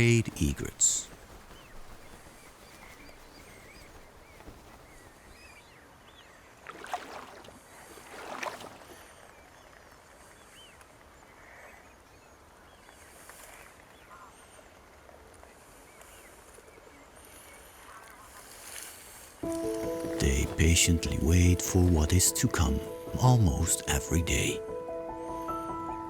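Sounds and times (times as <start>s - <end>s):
small birds chirping: 0.0s - 6.5s
paddle splashing in water: 6.6s - 9.1s, 18.6s - 21.2s.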